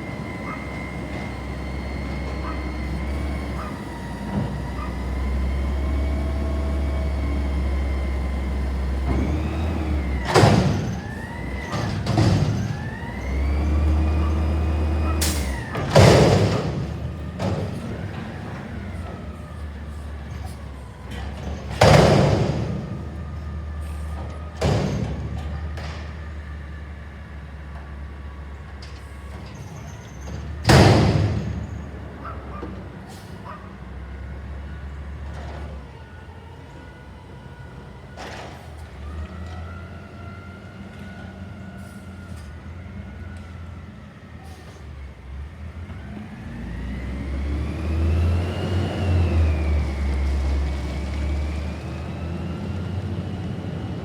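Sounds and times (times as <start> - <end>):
garbage truck engine revving: 0.0 - 28.6, 44.8 - 54.0.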